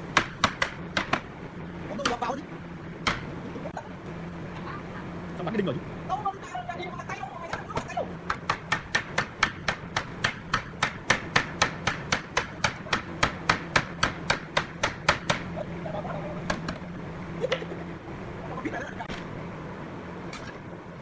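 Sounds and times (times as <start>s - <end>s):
low steady hum: 0.0s - 21.0s
hammer nailing into wood: 0.2s - 1.3s, 8.3s - 15.4s.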